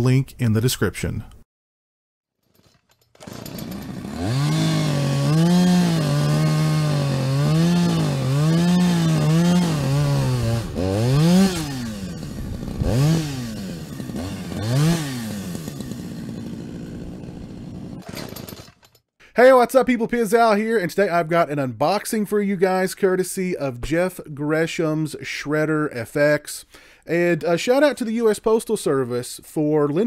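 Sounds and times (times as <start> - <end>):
small engine revving: 3.2 - 18.7.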